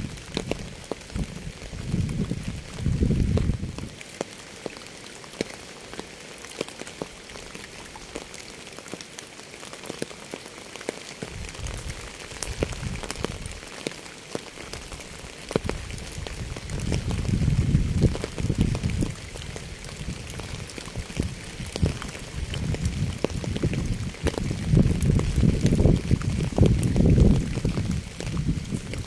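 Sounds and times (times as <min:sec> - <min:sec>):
rain falling: 0:00.0 - 0:29.0
raindrops tapping: 0:00.0 - 0:29.0.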